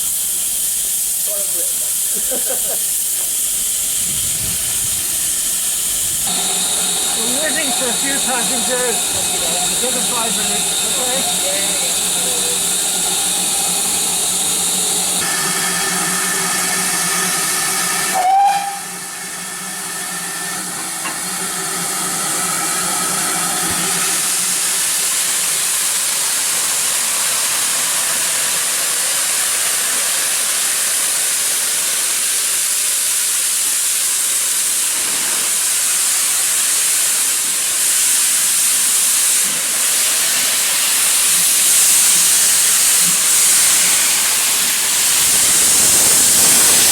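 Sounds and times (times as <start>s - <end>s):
steam hissing: 0.0s - 46.9s
steady hum: 6.0s - 17.7s.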